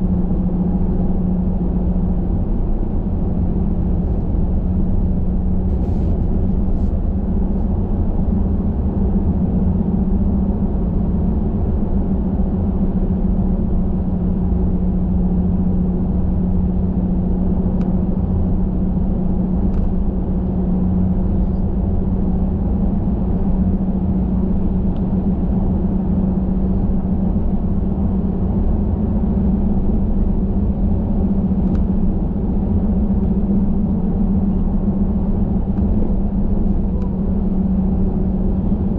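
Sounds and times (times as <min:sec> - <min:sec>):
constant low hum: 0:00.0 - 0:38.9
road noise: 0:00.0 - 0:38.9
car engine: 0:10.6 - 0:38.9.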